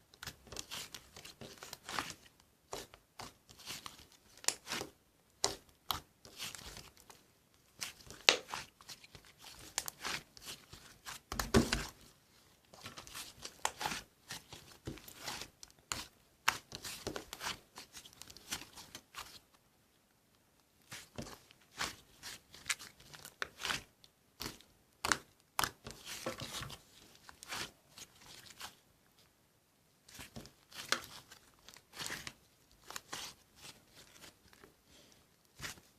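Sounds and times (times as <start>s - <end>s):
crinkling handling noises: 30.1s - 35.9s.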